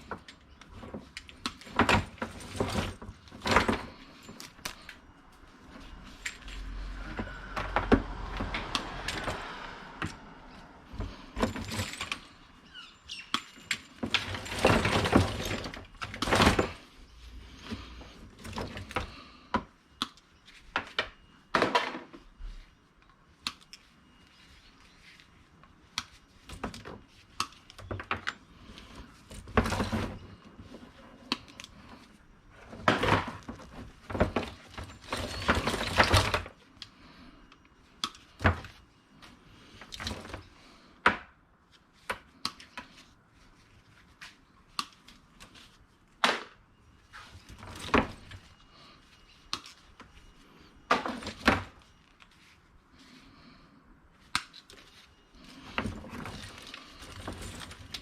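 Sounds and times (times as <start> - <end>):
scrap items knocking and clattering: 0.0 - 4.9, 6.1 - 10.2, 10.9 - 12.4, 13.6 - 16.9, 29.2 - 30.9, 32.6 - 36.6.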